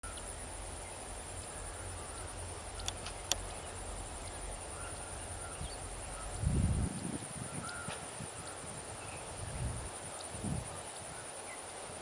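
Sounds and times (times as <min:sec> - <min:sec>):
insects buzzing: 0:00.0 - 0:12.0
low wind rumble: 0:00.0 - 0:12.0.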